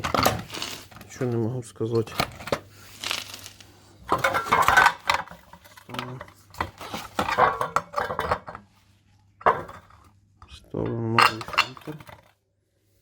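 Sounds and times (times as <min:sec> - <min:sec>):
metal parts clinking and clattering: 0:04.1 - 0:08.6, 0:11.1 - 0:12.3.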